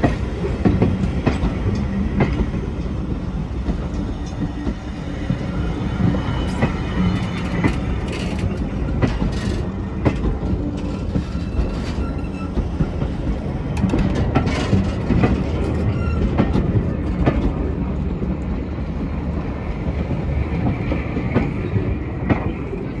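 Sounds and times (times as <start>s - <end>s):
train coaches rumbling past: 0.0s - 23.0s
wheel clicks over rail joints: 6.5s - 17.6s.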